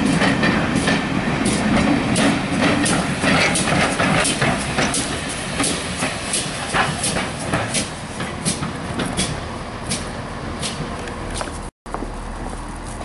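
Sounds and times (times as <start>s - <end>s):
train wheels clicking over joints: 0.0s - 11.7s
train rumble: 0.0s - 13.0s.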